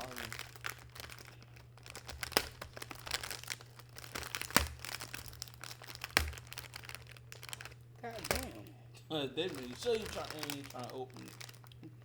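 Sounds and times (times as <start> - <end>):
sharp plastic snaps: 0.0 - 8.6
plastic packaging crinkling: 0.0 - 12.0.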